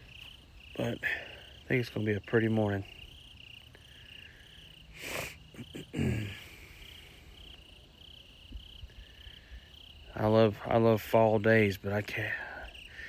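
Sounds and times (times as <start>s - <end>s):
crickets chirping: 0.0s - 13.0s
person breathing out: 4.0s - 7.2s.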